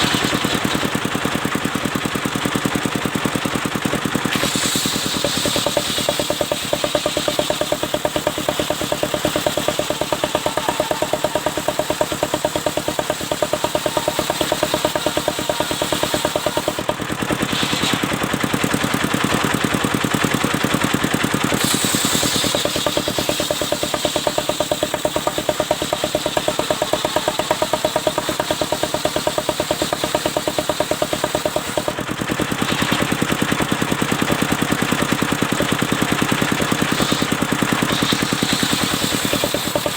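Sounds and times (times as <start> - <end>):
sawmill engine running: 0.0 - 39.9
saw hissing through wood: 4.3 - 19.0, 21.5 - 31.9, 36.3 - 39.9.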